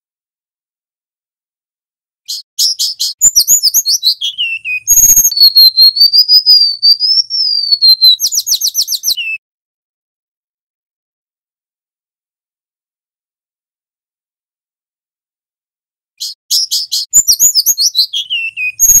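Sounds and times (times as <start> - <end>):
bird singing high sweet notes: 2.3 - 9.4, 16.2 - 19.0.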